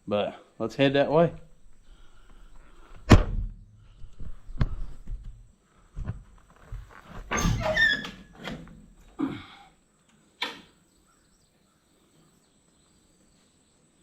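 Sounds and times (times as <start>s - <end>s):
door shutting thunks: 7.2s - 9.2s
door squeaking open: 7.3s - 8.8s.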